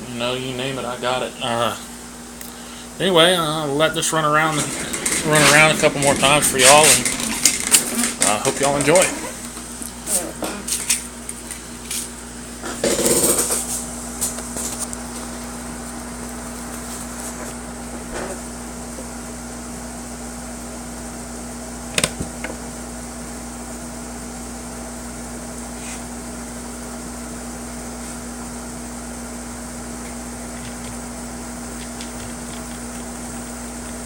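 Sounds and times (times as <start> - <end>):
air-conditioner noise: 0.0 - 34.0
model locomotive motor humming: 3.9 - 9.3.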